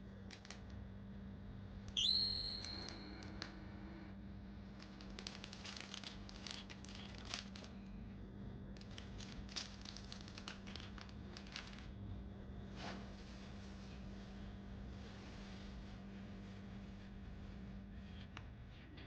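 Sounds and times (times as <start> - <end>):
steady low hum: 0.0 - 19.0
crinkling and rustling: 0.2 - 0.7, 4.6 - 12.0.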